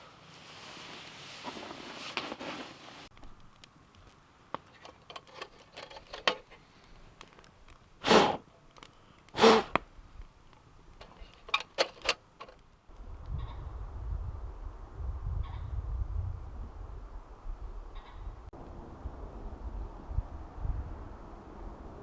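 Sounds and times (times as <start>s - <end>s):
handling clicks and rustles: 0.8s - 8.0s, 8.6s - 12.8s.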